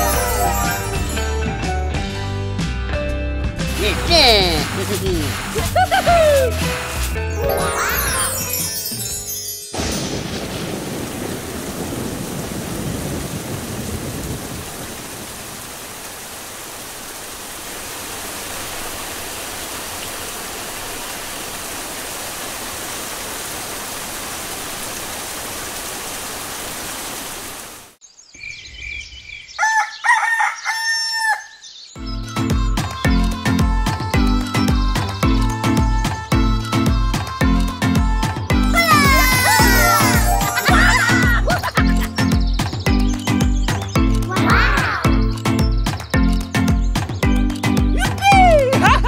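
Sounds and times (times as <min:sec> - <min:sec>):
rooster crowing: 0:29.6 - 0:31.6
music with a beat: 0:32.3 - 0:38.8, 0:45.2 - 0:48.8.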